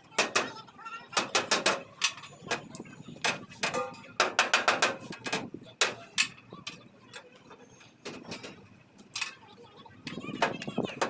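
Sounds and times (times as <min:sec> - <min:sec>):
hammer striking sheet metal: 0:01.2 - 0:01.9, 0:03.2 - 0:06.1.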